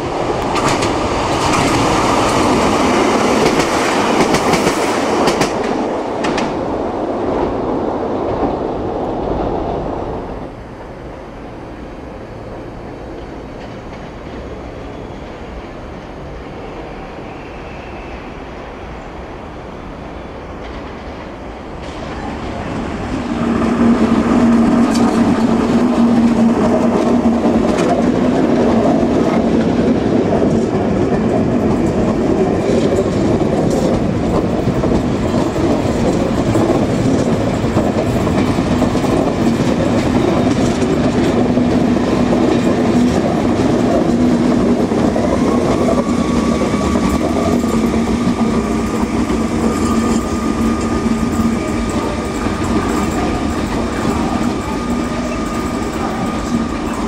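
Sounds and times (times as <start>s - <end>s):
train wheels clattering: 0.0s - 6.7s, 21.8s - 57.0s
train steady hum: 0.0s - 57.0s.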